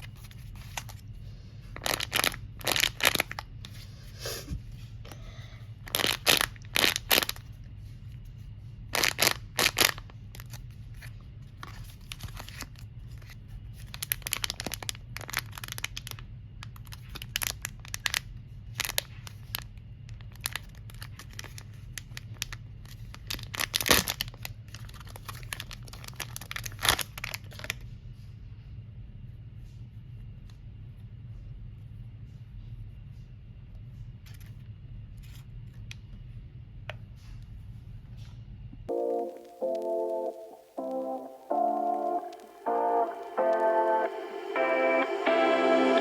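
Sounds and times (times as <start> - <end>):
packaging tearing and crinkling: 9.0 - 10.6, 13.8 - 16.1, 23.1 - 27.7
low hum: 38.9 - 46.0.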